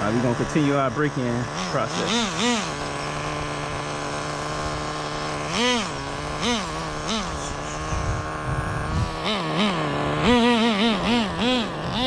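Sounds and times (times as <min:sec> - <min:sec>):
engine throttle blips: 0:00.0 - 0:12.0
small nitro engine idling: 0:00.0 - 0:12.0.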